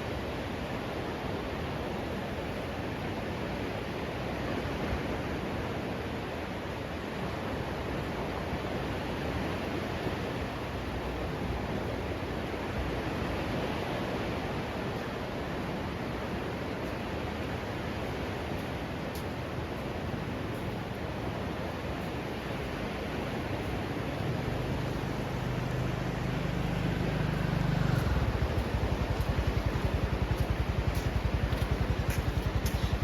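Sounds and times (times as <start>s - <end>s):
surf on beach: 0.0s - 33.0s
wind on microphone: 19.6s - 33.0s.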